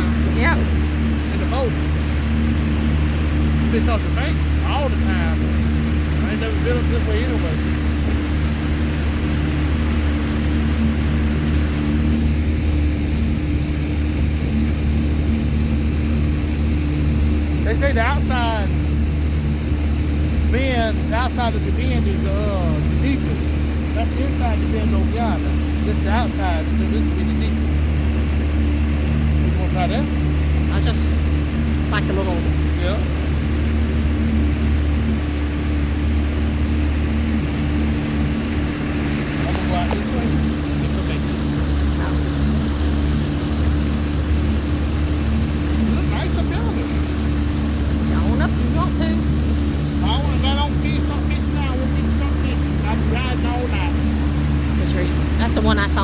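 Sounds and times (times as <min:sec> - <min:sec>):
boat motor droning: 0:00.0 - 0:56.0.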